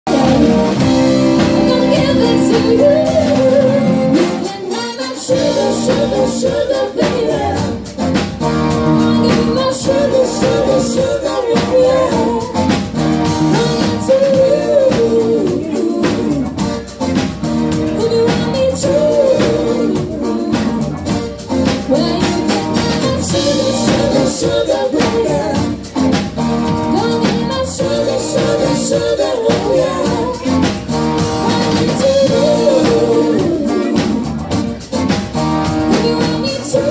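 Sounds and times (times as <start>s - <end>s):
live band playing rock and roll: 0.0s - 36.9s
person singing: 0.0s - 36.9s.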